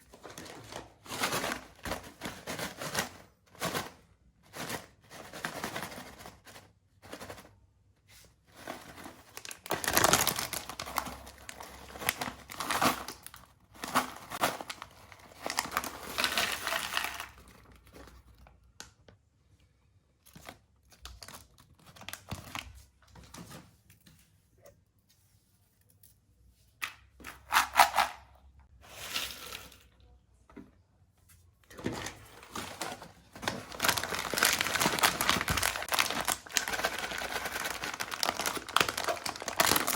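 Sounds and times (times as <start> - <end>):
plastic packets tearing and crinkling: 8.8 - 18.0, 21.0 - 22.7, 32.4 - 39.9.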